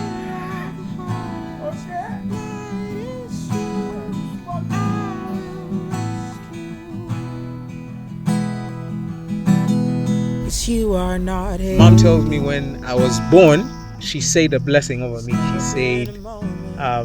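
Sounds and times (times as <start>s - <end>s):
acoustic guitar strummed chords: 0.0s - 17.0s
sliding guitar melody: 11.8s - 17.0s.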